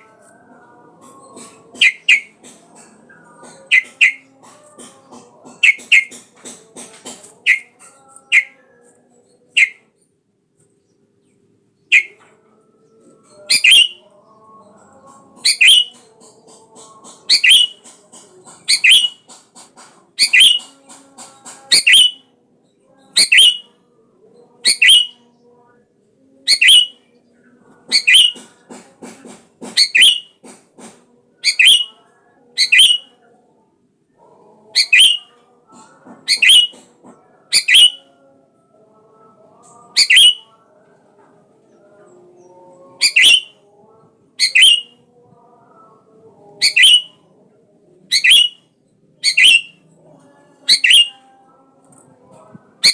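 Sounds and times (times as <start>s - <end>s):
soft bird chattering: 1.0s - 4.7s, 5.4s - 6.2s, 7.0s - 8.6s, 9.5s - 9.8s, 11.9s - 12.2s, 13.4s - 14.0s, 15.4s - 16.1s, 16.8s - 19.4s, 20.2s - 22.2s, 23.2s - 23.6s, 24.6s - 25.2s, 26.5s - 27.0s, 27.9s - 28.5s, 29.7s - 30.4s, 31.4s - 32.0s, 32.6s - 33.1s, 34.8s - 35.3s, 36.3s - 36.8s, 37.5s - 38.0s, 39.9s - 40.4s, 43.0s - 43.5s, 44.4s - 44.9s, 46.6s - 47.1s, 48.1s - 48.6s, 49.2s - 49.8s, 50.7s - 51.2s
bulbul calling: 1.4s - 2.5s, 3.4s - 4.6s, 5.4s - 6.2s, 7.0s - 8.6s, 9.6s - 9.8s, 11.9s - 12.2s, 13.4s - 14.0s, 15.4s - 16.0s, 16.8s - 17.9s, 18.7s - 19.4s, 20.2s - 22.2s, 23.2s - 23.7s, 24.7s - 25.2s, 26.5s - 27.0s, 27.9s - 28.5s, 29.7s - 30.4s, 31.4s - 32.0s, 32.6s - 33.1s, 34.8s - 35.3s, 36.3s - 36.8s, 37.5s - 38.0s, 40.0s - 40.4s, 43.0s - 43.6s, 44.4s - 45.0s, 46.6s - 47.1s, 48.1s - 48.6s, 49.2s - 49.8s, 50.7s - 51.2s.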